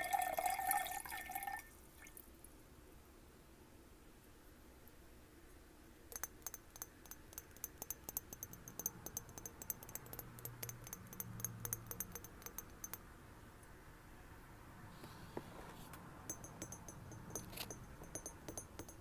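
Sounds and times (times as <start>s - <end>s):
fingernails tapping on glass: 6.1s - 13.0s, 16.3s - 19.0s.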